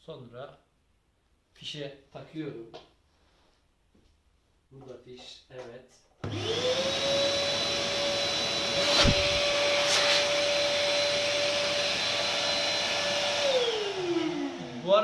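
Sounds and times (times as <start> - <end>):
vacuum blower high whine: 6.2 - 15.0.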